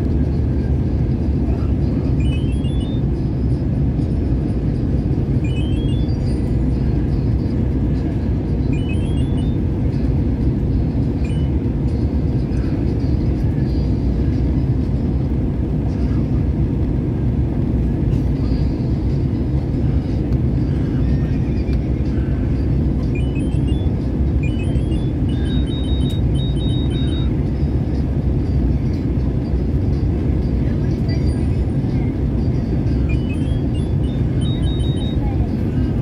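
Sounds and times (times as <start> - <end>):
airliner cabin roar: 0.0 - 36.0
faint rising chirps: 23.2 - 27.3.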